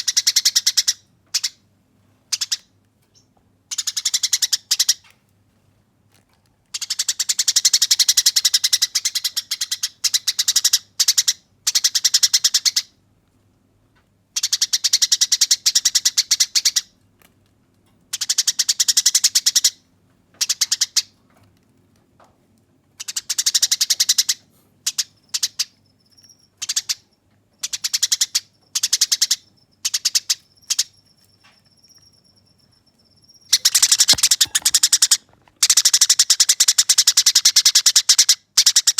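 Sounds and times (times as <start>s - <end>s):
sparrows chattering: 23.0s - 35.2s
thin high steady tone: 30.4s - 34.9s.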